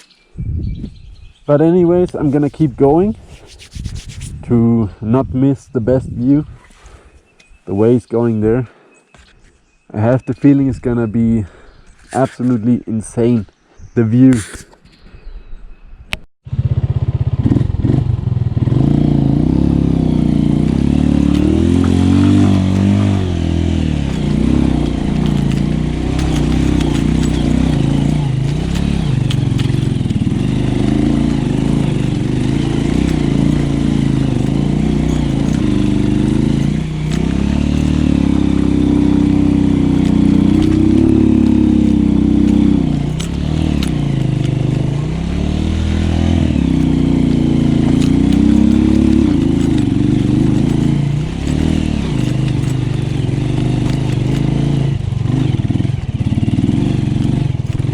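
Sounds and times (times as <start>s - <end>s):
small motorcycle engine running: 16.5s - 57.9s.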